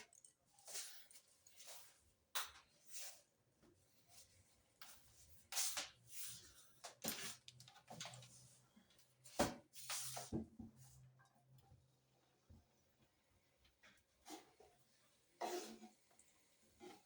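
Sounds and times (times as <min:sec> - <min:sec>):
kitchen knocks and clatters: 0:09.3 - 0:10.8.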